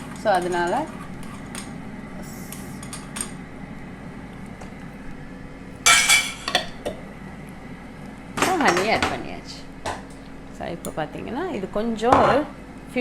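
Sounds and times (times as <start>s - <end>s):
utensil clatter: 0.0s - 3.5s, 5.8s - 7.0s, 8.3s - 10.3s.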